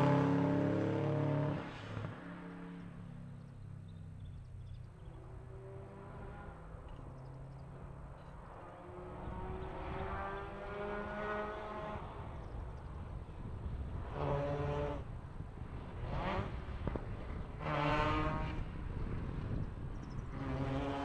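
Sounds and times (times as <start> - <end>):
distant rally car engine: 0.0 - 21.0.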